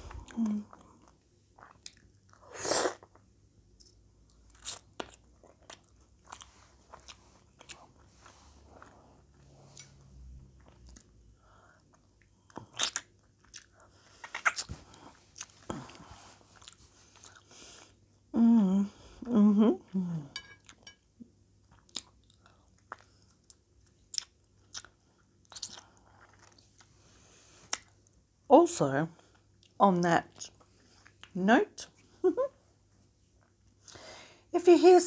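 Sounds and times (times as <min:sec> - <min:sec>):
chewing with chip crunches: 0:11.9 - 0:17.4, 0:21.7 - 0:26.9.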